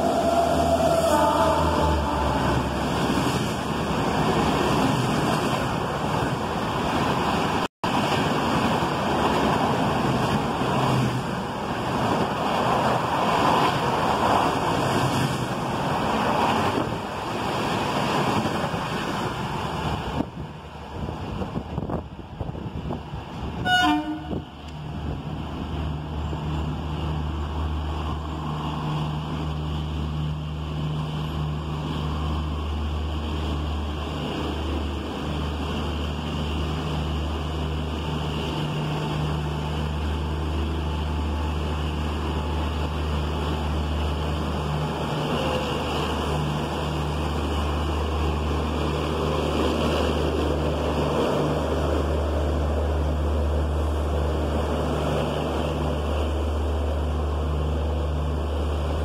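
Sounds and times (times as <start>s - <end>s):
wind buffeting microphone: 0.0s - 28.2s
train rumbling: 0.0s - 59.0s.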